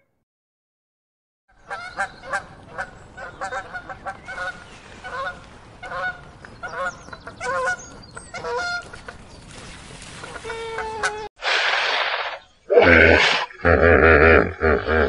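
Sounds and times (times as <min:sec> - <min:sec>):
waterfowl honking: 0:01.6 - 0:07.8.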